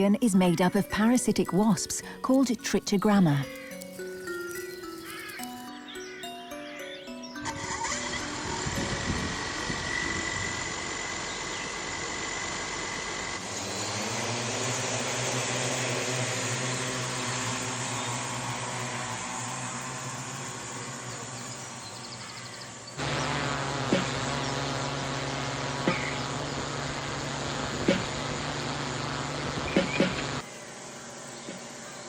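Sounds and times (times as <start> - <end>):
drone rotors whirring: 7.4 - 32.0.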